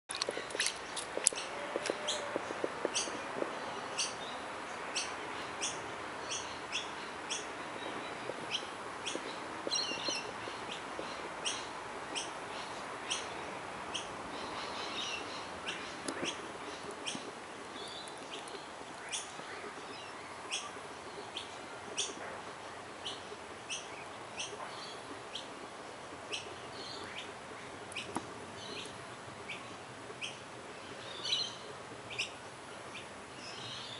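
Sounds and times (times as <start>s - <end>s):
small birds chirping: 0.1s - 25.5s
steady background hiss: 0.3s - 33.9s.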